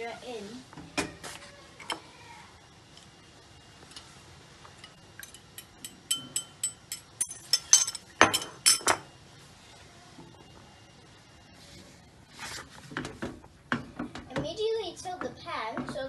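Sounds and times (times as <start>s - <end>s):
utensil clinking against bowl: 4.8s - 9.0s.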